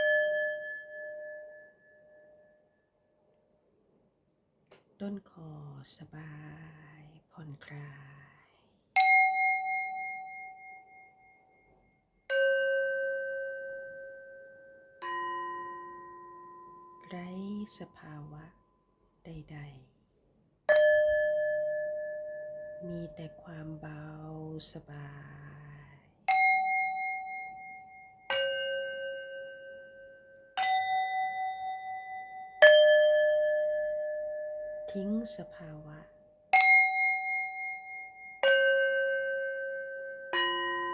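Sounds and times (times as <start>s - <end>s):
singing bowls ringing: 0.0s - 2.8s, 20.7s - 23.2s, 26.3s - 40.9s.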